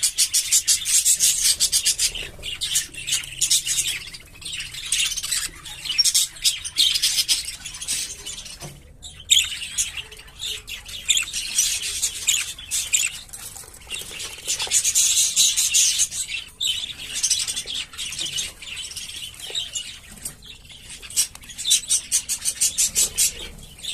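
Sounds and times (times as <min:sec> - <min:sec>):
budgerigars chattering: 0:00.0 - 0:23.9.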